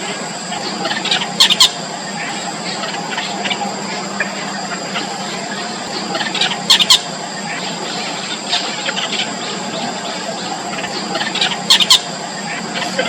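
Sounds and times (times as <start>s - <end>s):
bird chicks squealing begging calls: 0.0s - 13.0s.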